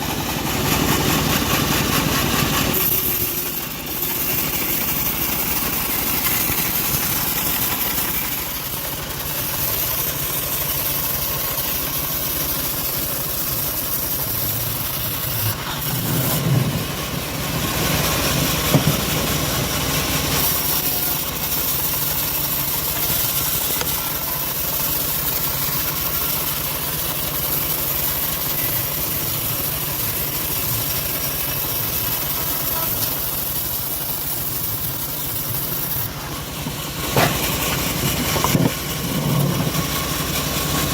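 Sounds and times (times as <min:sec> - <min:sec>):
sawmill engine running: 0:00.0 - 0:40.9.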